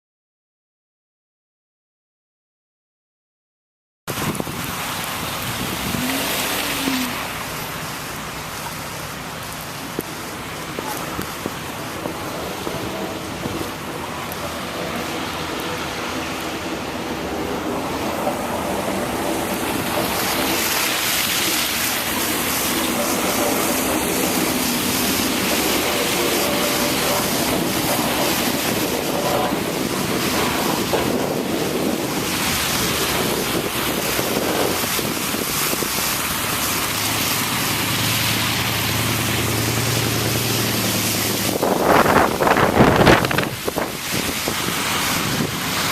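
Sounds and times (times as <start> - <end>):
wind buffeting microphone: 4.1 - 7.5, 16.4 - 36.6, 40.8 - 45.9.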